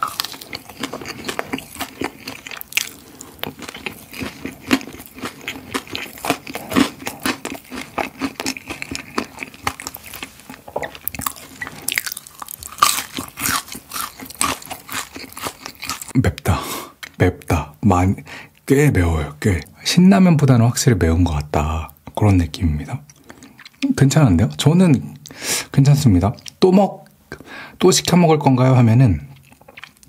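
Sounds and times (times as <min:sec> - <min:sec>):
chewing crispy fried chicken: 0:00.0 - 0:17.6, 0:22.8 - 0:25.4, 0:29.2 - 0:30.0.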